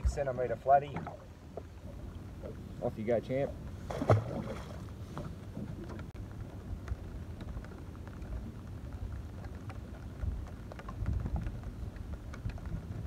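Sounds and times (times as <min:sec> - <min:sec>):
wind rumble on microphone: 0:01.1 - 0:13.0
rain drops ticking: 0:06.0 - 0:13.0.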